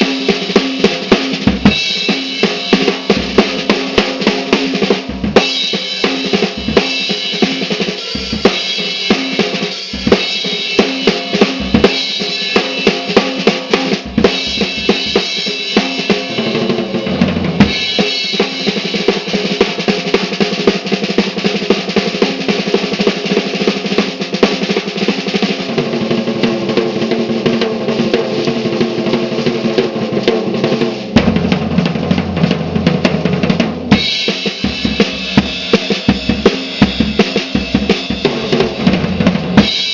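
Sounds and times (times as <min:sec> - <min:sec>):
cymbals: 0:00.0 - 0:22.7, 0:33.8 - 0:39.9
rapid drum fills: 0:00.0 - 0:39.9
snare drum: 0:00.0 - 0:39.9.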